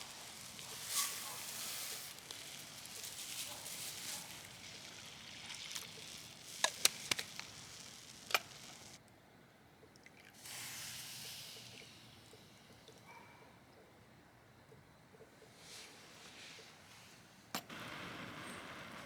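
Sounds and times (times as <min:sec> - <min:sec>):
food sizzling in a pan: 0:00.0 - 0:09.0, 0:10.4 - 0:12.4.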